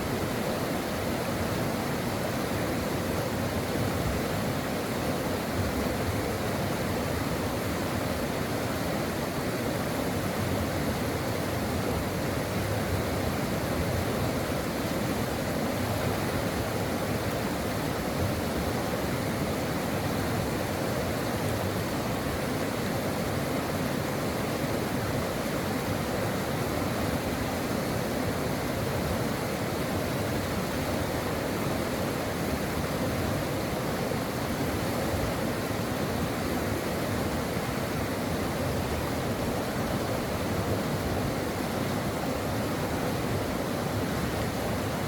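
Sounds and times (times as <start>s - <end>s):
brook water rushing: 0.0s - 45.0s.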